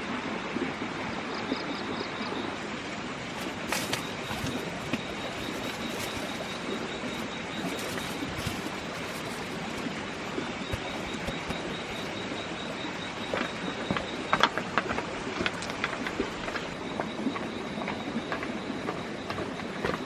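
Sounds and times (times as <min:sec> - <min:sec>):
outdoor noise: 0:00.0 - 0:20.0
high-pitched continuous tone: 0:03.3 - 0:15.2.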